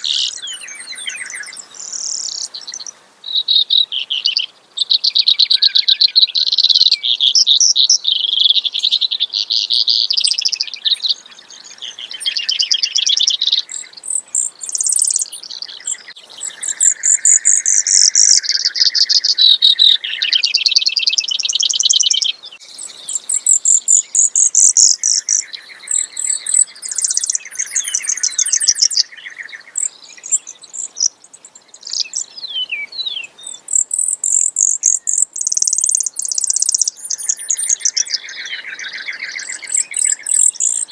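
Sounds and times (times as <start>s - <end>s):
sparrow singing trills: 0.0s - 40.9s.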